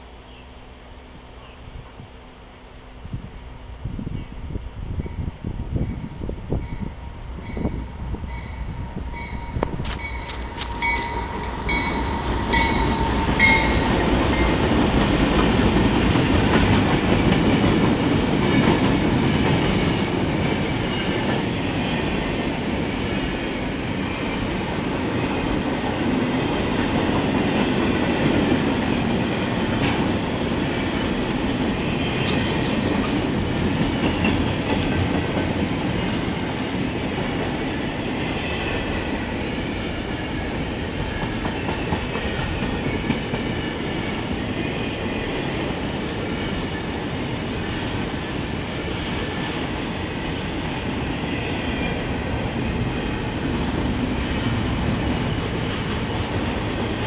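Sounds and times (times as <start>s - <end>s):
freight train rumbling: 0.0s - 57.0s
crossing bell ringing: 5.0s - 14.8s.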